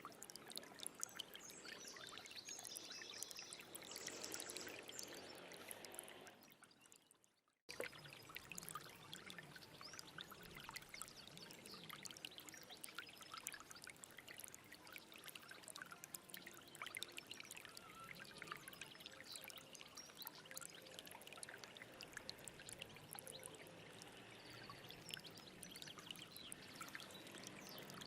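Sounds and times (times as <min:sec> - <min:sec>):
stream splashing over rocks: 0:07.7 - 0:28.0.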